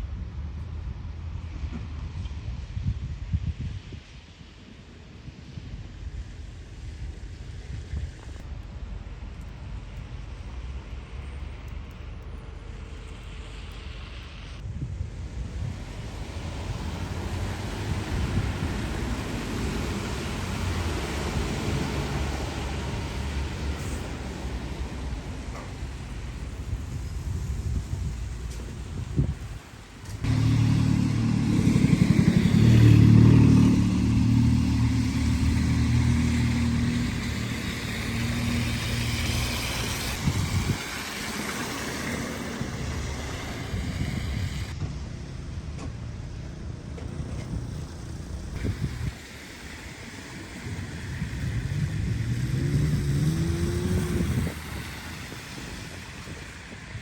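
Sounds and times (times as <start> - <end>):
street noise hiss: 0.0 - 57.0
engine accelerating: 15.6 - 26.1, 30.0 - 45.8, 47.0 - 57.0
vehicle engine passing by: 15.6 - 26.4, 30.1 - 45.5, 47.2 - 57.0.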